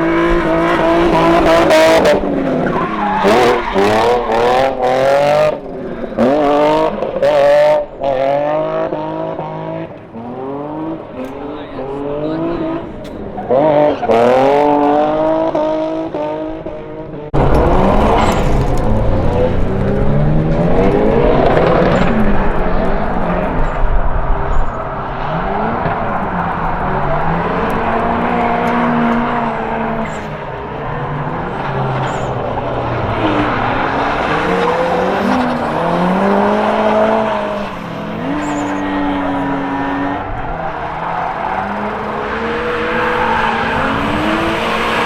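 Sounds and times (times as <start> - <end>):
tyres squealing: 0.0 - 7.0, 17.4 - 45.0
car engines revving: 0.0 - 45.0.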